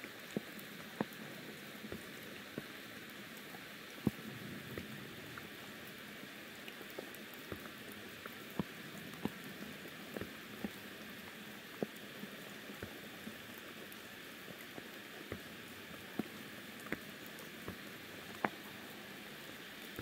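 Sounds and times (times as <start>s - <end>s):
light rain on foliage: 0.0s - 20.0s
heavy raindrops landing: 16.2s - 19.1s.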